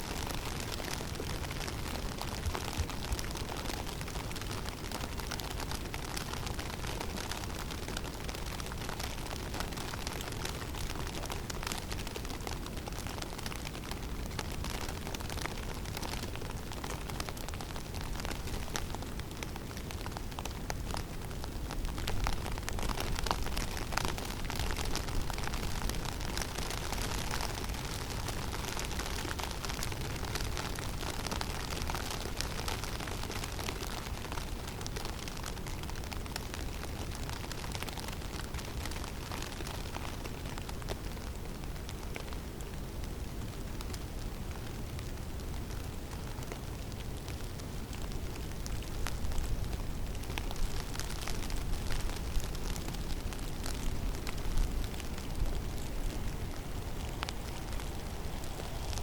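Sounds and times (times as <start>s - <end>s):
snow ticking: 48.5s - 59.0s
wind rumbling: 48.6s - 59.0s.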